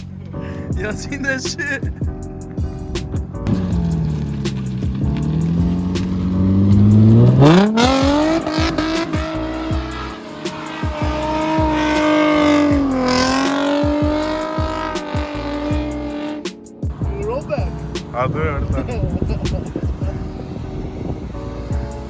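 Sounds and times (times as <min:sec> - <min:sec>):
car engine revving: 0:03.4 - 0:16.6.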